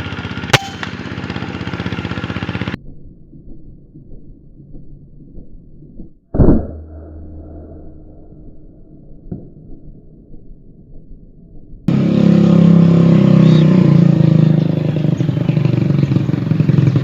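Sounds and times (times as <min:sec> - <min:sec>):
vehicle engine running loudly: 0:00.0 - 0:02.8, 0:11.9 - 0:17.0.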